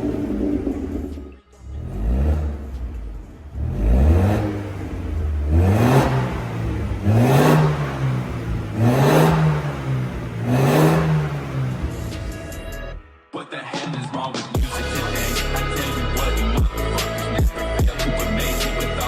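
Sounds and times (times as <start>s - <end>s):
car engine revving: 0.0s - 12.9s.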